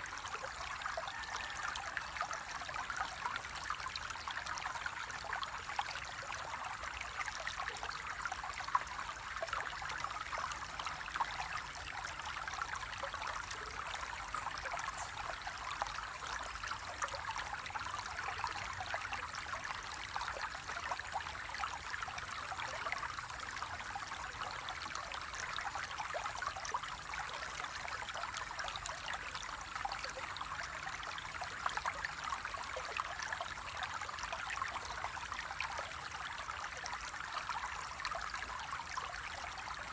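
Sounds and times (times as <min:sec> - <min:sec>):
flowing water splashing: 0:10.2 - 0:20.0.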